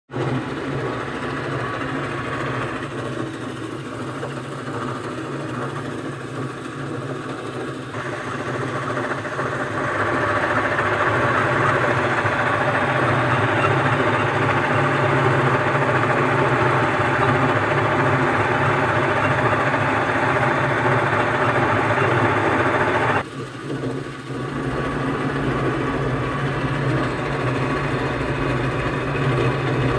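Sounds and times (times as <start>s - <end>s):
lathe humming: 7.9s - 23.2s.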